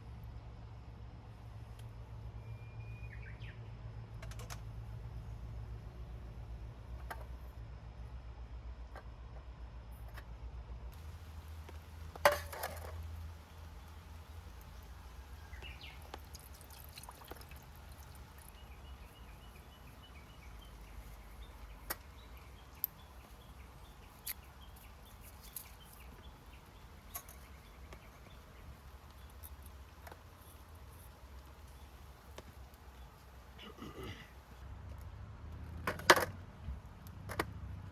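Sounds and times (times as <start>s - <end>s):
fire popping: 11.0s - 33.7s
wood fire crackling: 11.0s - 33.7s.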